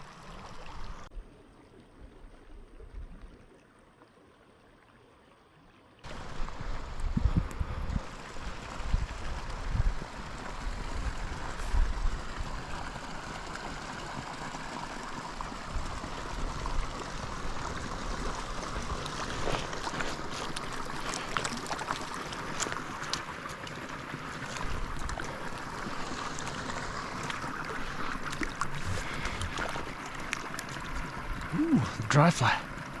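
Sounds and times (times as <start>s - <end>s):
wind buffeting microphone: 6.2s - 12.6s
river water rushing: 8.0s - 33.0s.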